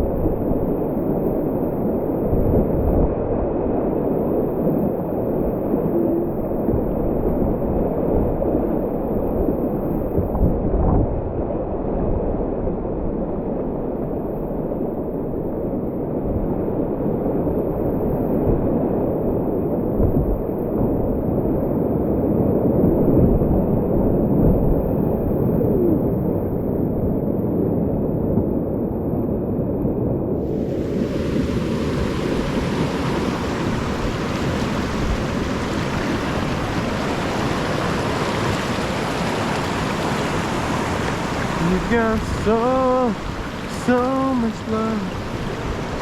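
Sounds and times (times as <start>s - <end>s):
muffled whitewater rapids rushing: 3.9s - 10.5s, 30.4s - 46.0s.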